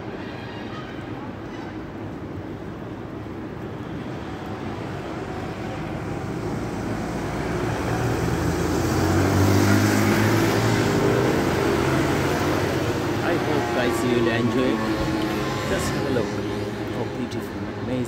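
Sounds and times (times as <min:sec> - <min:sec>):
street noise: 0:00.0 - 0:18.0
vehicle engine hum approaching: 0:03.5 - 0:18.0.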